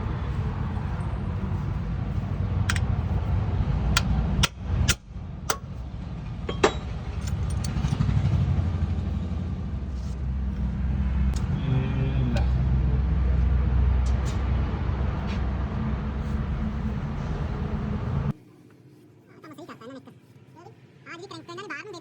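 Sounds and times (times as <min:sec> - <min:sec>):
vehicle engine rumbling: 0:00.0 - 0:18.4
sharp clicks and knocks: 0:02.6 - 0:03.0.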